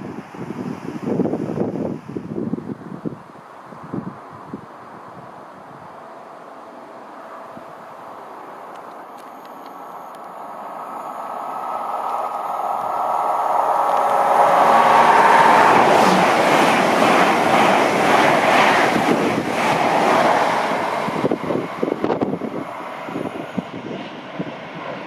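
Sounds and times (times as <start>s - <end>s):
train whine: 5.8s - 25.0s
train wheels clattering on rail: 11.9s - 22.5s.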